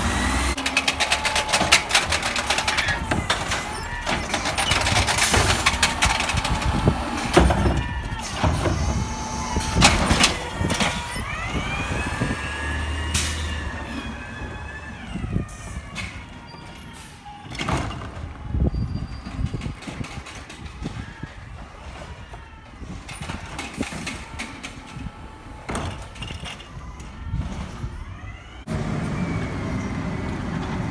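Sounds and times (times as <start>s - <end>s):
garbage truck engine revving: 0.0s - 19.7s, 20.8s - 30.9s
metal clanks and bangs: 0.6s - 12.4s.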